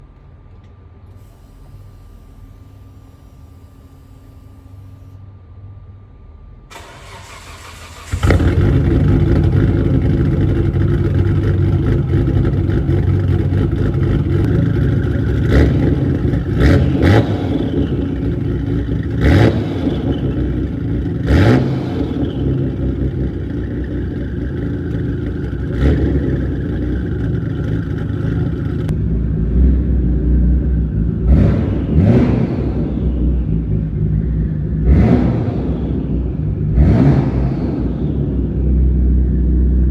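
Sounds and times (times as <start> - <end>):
engine starting: 6.7 - 9.6
car engine idling: 6.7 - 31.3.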